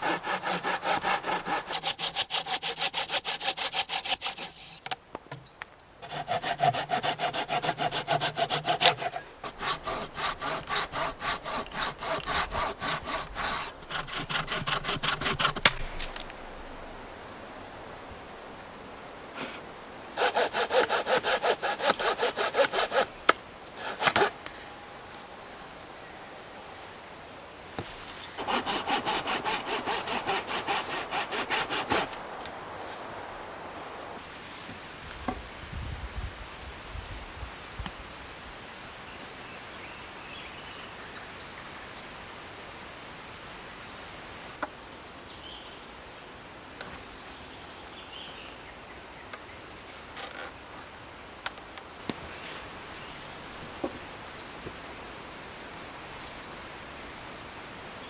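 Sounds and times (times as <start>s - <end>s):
hand saw cutting wood: 0.0s - 4.9s, 6.0s - 16.3s, 20.2s - 23.2s, 23.8s - 24.4s, 27.8s - 32.2s.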